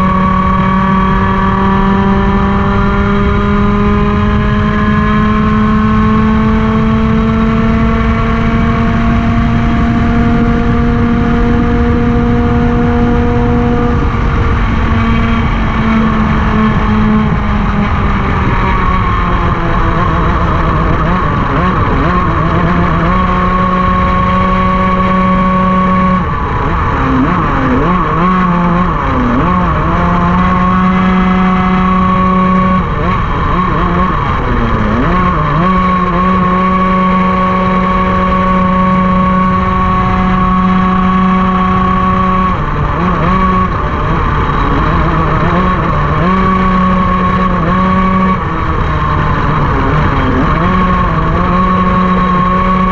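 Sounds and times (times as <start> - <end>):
kart engine revving: 0.0 - 52.9.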